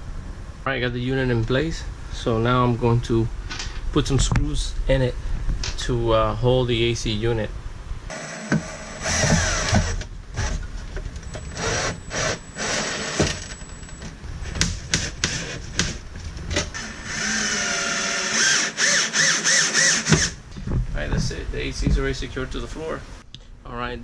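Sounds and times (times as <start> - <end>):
power drill whine: 8.1 - 10.6, 11.2 - 14.2, 16.7 - 20.4.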